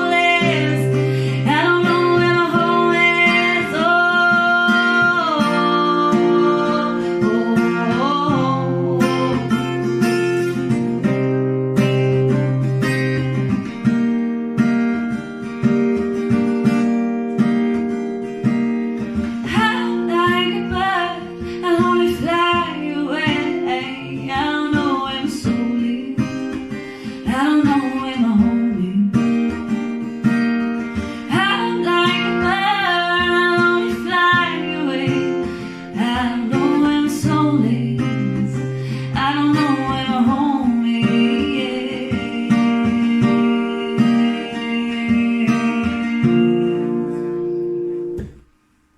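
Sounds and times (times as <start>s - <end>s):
person singing: 0.0s - 10.0s, 31.2s - 47.6s
acoustic guitar strumming: 0.0s - 48.9s.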